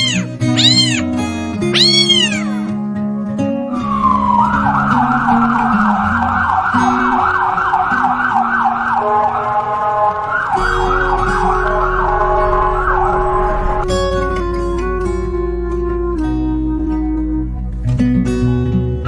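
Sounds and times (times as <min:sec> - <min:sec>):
siren yelping: 0:00.0 - 0:02.7, 0:03.8 - 0:13.3.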